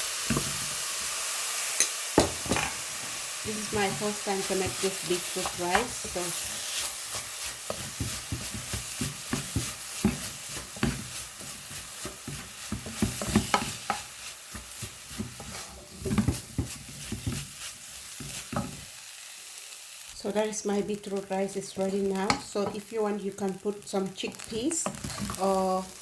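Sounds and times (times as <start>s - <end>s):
food sizzling: 0.0s - 26.0s
utensil scraping a pan: 2.5s - 18.7s.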